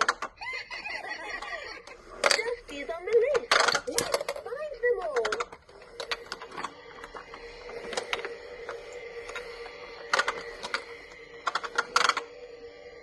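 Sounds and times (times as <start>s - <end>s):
plastic clicking and rattling: 0.0s - 0.4s, 2.2s - 8.3s
toy vacuum electronic hum: 0.0s - 13.0s.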